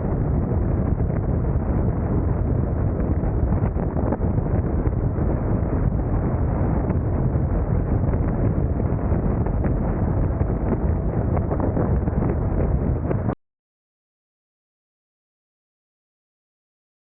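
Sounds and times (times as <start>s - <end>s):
wind buffeting microphone: 0.0s - 13.4s.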